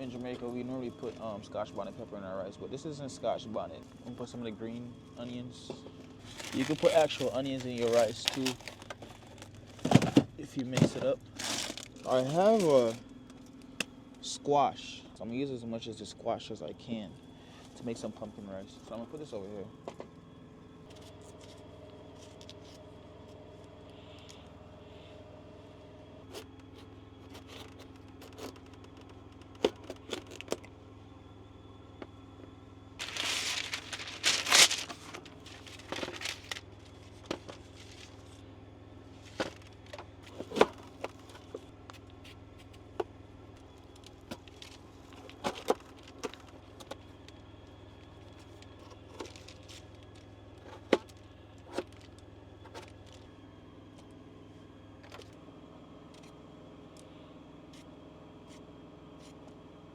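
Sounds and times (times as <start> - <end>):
steady low hum: 0.0 - 59.9
plastic packaging rustling: 6.2 - 9.9, 11.3 - 13.0, 33.0 - 38.4.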